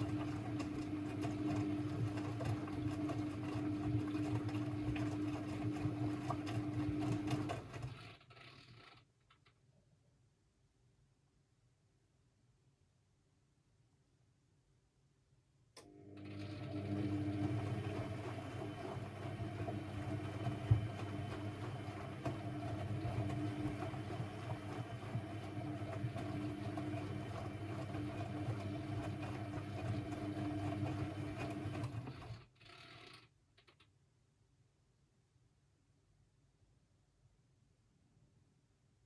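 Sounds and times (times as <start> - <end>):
washing machine running: 0.0 - 8.3, 15.8 - 32.5.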